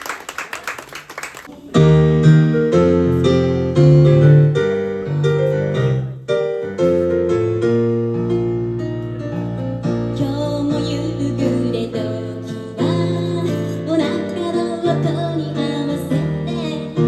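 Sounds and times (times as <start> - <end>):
applause: 0.0 - 1.7
piano playing sustained chords: 1.8 - 17.0.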